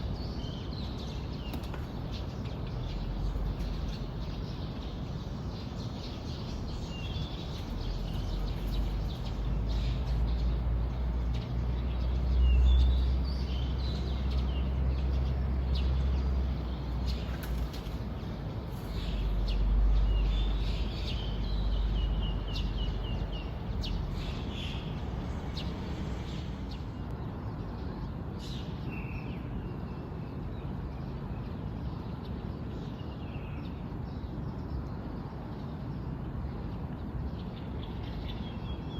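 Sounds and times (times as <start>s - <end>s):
birds chirping and calling: 0.0s - 27.0s.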